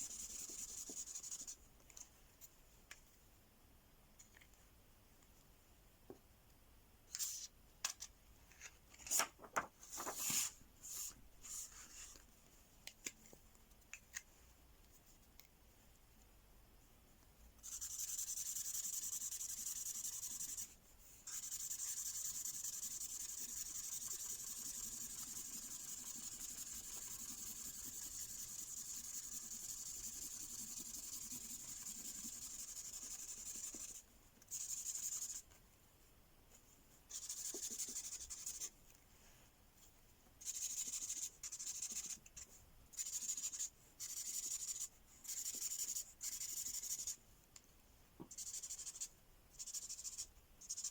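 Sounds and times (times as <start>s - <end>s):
marker pen scribbling on paper: 0.0s - 1.6s, 17.6s - 35.5s, 37.1s - 38.7s, 40.4s - 47.2s, 48.3s - 50.9s.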